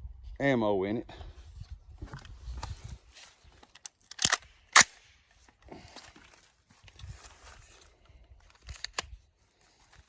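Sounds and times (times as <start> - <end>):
rifle bolt clicks and clacks: 3.6 - 5.2, 8.5 - 9.2.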